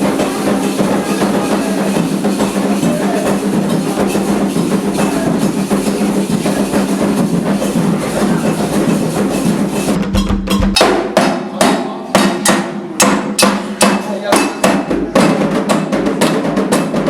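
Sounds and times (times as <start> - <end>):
faint voices: 0.0 - 10.0
ritual drumming: 0.0 - 17.0.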